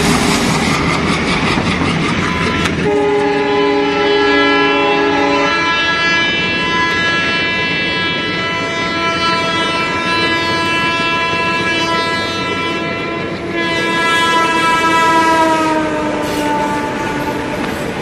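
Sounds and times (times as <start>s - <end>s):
train clattering over track: 0.0s - 3.9s, 9.4s - 18.0s
multi-tone train horn: 2.2s - 18.0s.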